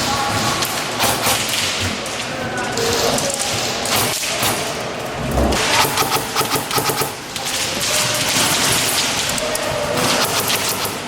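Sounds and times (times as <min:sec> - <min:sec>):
airsoft guns firing bursts: 0:05.4 - 0:07.2.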